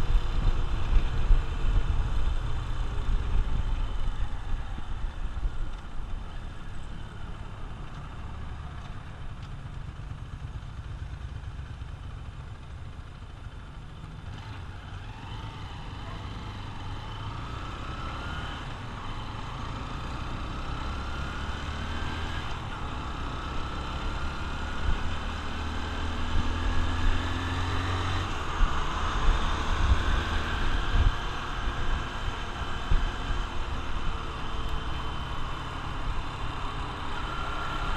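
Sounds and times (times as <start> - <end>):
motorcycle engine revving: 14.0 - 37.9.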